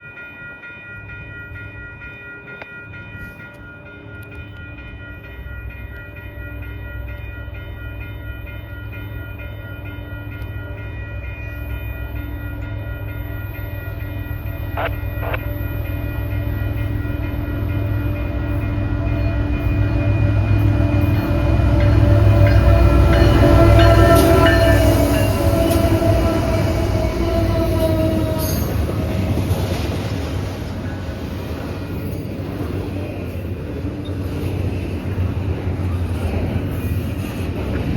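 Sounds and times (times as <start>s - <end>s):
steady high tones: 2.9s - 27.2s.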